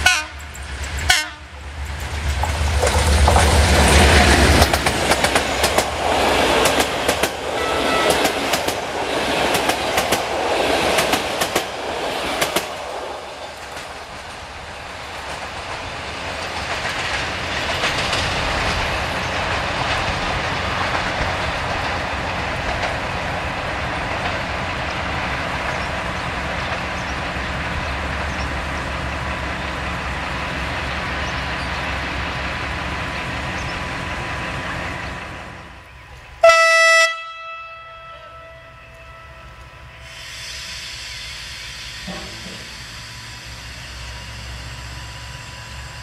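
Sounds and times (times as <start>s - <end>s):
locomotive horn blast: 0.0s - 0.5s, 1.1s - 1.5s, 7.5s - 8.4s, 36.4s - 40.1s
train wheels rolling past: 0.0s - 36.4s, 38.6s - 46.0s.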